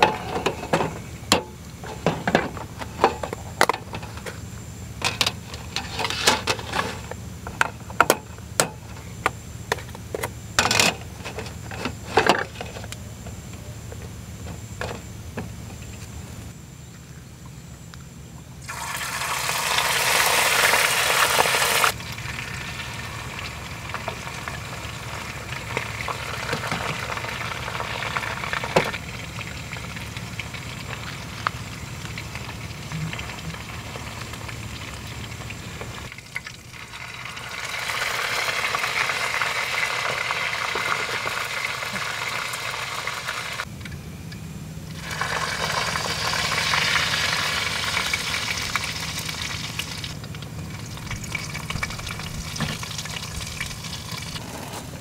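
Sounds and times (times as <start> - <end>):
squid sizzling in hot oil: 18.7 - 43.6, 45.0 - 54.4.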